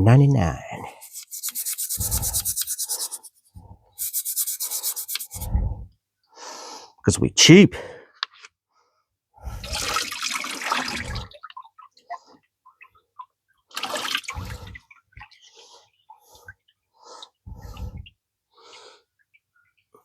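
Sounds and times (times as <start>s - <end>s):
water splashing in a bath: 9.5s - 18.2s
water dripping: 9.6s - 20.0s.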